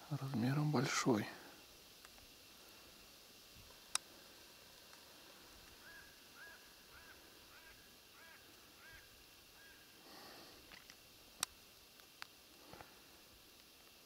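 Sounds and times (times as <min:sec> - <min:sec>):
faint bird call: 0:05.3 - 0:10.6.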